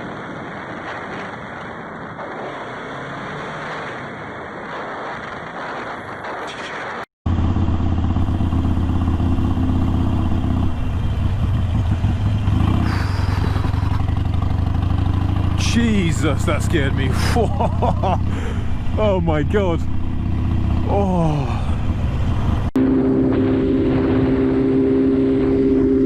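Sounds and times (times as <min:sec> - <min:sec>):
wind and road noise: 0:00.0 - 0:26.0
motorcycle engine running: 0:07.3 - 0:26.0.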